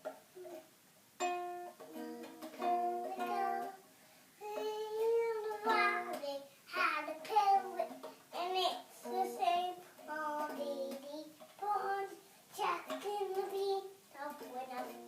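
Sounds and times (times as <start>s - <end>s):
plucked string instrument notes: 0.0s - 3.8s.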